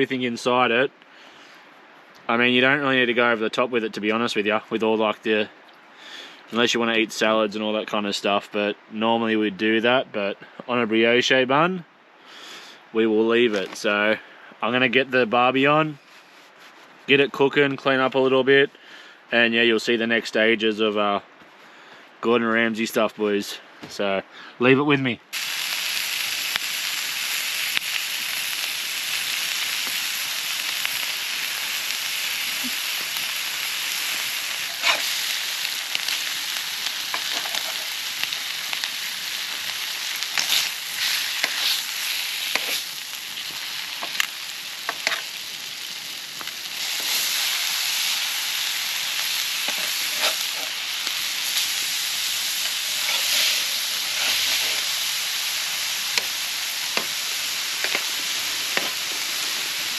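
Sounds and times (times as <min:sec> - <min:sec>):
burger patties sizzling on barbecue: 0:25.3 - 0:59.9
fat popping and crackling: 0:27.7 - 0:55.0, 0:55.8 - 0:59.2.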